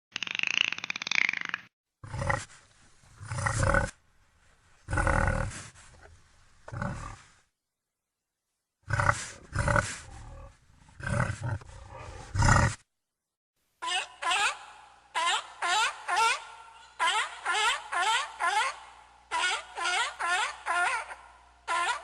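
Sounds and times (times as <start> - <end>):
big cat roaring: 8.9 - 12.8.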